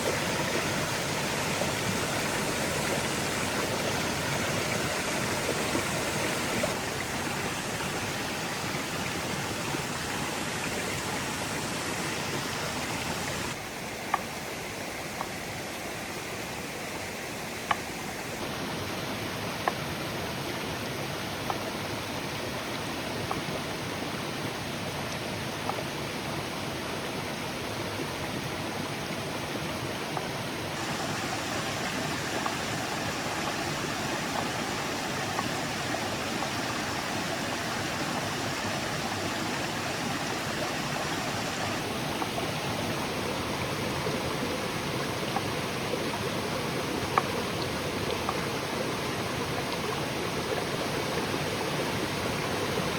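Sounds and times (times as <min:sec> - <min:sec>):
steady rushing noise: 0:00.0 - 0:03.8.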